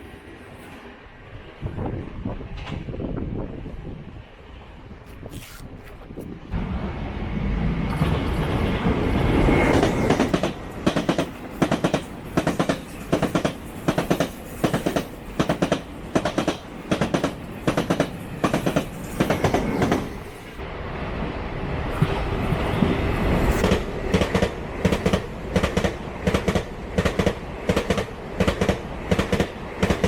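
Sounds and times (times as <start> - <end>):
train rumbling past: 6.3 - 30.0
train wheels clacking on rail joints: 9.7 - 20.2, 23.6 - 30.0.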